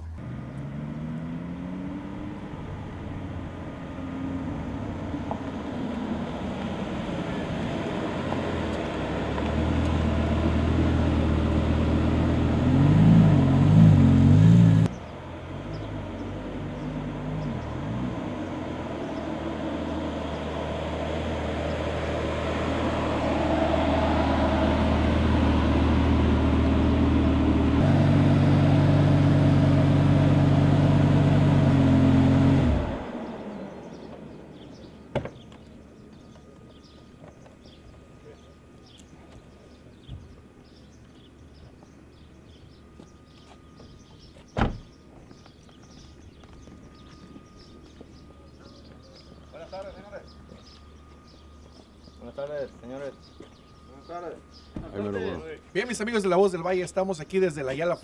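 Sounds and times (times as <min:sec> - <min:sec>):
sports car engine revving: 0:00.2 - 0:37.0.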